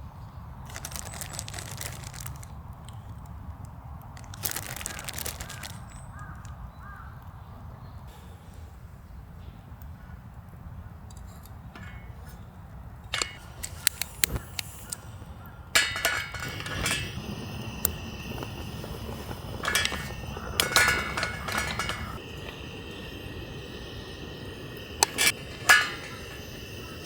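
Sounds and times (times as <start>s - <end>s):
dishes and utensils clinking: 13.2s - 13.8s, 15.8s - 27.0s.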